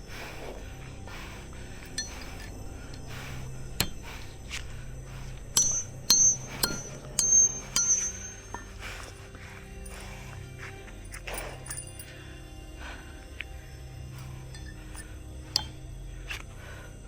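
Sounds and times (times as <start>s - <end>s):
faint steady hum: 0.0s - 17.0s
sharp metallic knocks ringing: 5.5s - 9.2s, 14.5s - 16.0s.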